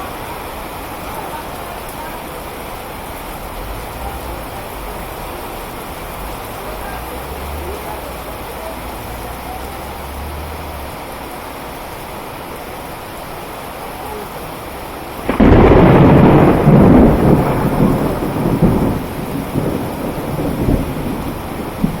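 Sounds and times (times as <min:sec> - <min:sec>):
heavy rain: 0:00.0 - 0:22.0
thunder clap rumbling: 0:15.2 - 0:22.0.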